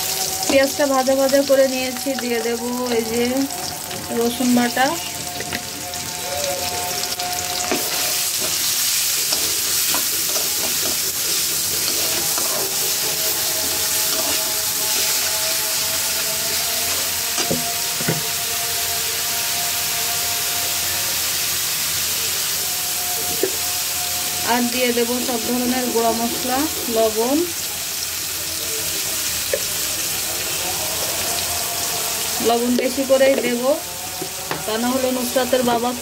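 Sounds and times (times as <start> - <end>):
onions sizzling in hot oil: 0.0 - 36.0
metal spatula scraping a pan: 2.5 - 18.4.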